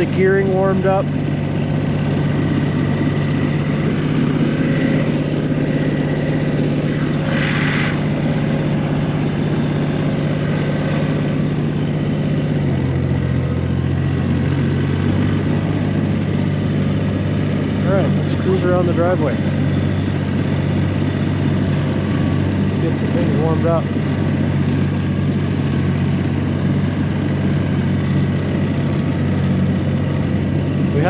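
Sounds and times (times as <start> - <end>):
tractor diesel engine running: 0.0 - 31.0
brief hiss: 7.0 - 8.2.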